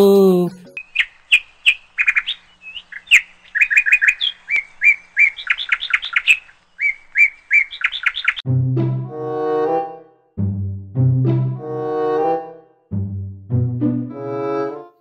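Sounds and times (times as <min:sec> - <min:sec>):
small birds chirping: 0:00.6 - 0:08.4
low bowed strings music: 0:08.5 - 0:15.0.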